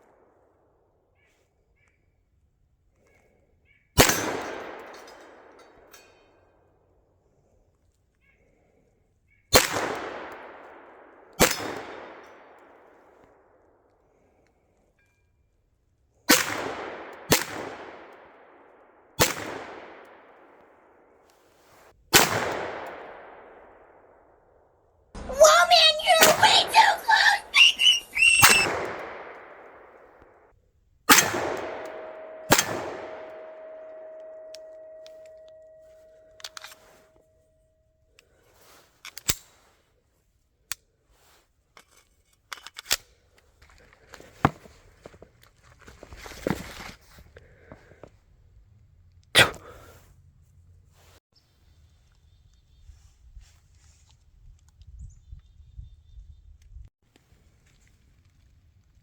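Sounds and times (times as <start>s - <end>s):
pistol shots: 4.0s - 5.6s, 9.6s - 12.8s, 16.3s - 18.6s, 19.2s - 20.4s, 26.2s - 30.0s, 31.1s - 35.0s
short voice-like sounds: 25.2s - 28.9s, 49.4s - 49.9s
faint steady ringing tone: 31.6s - 38.1s.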